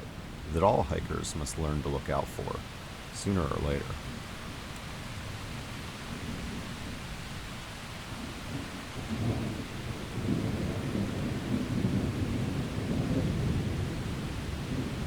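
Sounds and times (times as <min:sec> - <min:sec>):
rain hiss: 0:00.0 - 0:15.0
thunder rumbling: 0:05.1 - 0:07.5, 0:08.1 - 0:15.0.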